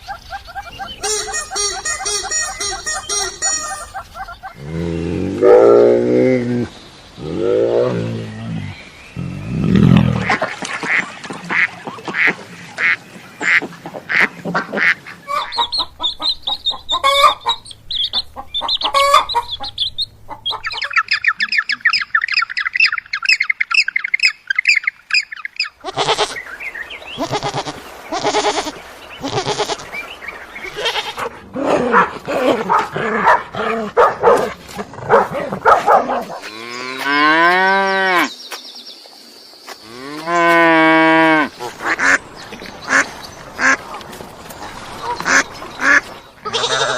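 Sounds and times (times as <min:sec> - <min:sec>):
long bleats: 0:25.8 - 0:26.4, 0:27.2 - 0:29.8, 0:46.4 - 0:46.9
duck quacks: 0:45.0 - 0:46.9.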